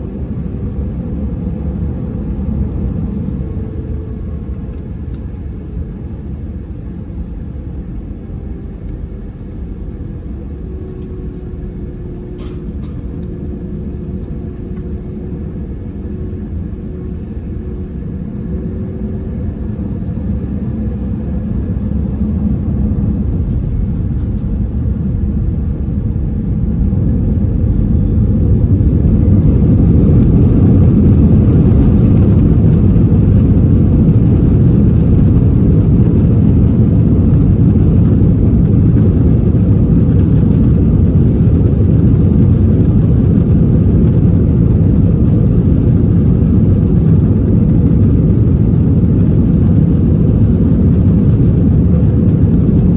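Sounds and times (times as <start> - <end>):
airplane cabin engine rumble: 0.0 - 52.9.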